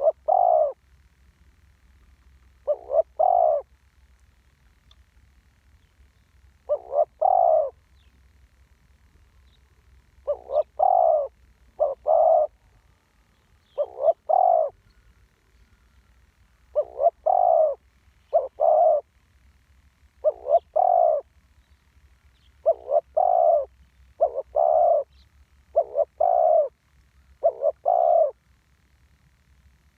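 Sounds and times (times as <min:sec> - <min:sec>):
dove cooing: 0:00.0 - 0:00.8, 0:02.6 - 0:03.7, 0:06.6 - 0:07.9, 0:10.2 - 0:12.9, 0:13.6 - 0:19.1, 0:20.2 - 0:21.3, 0:22.6 - 0:26.8, 0:27.4 - 0:28.4.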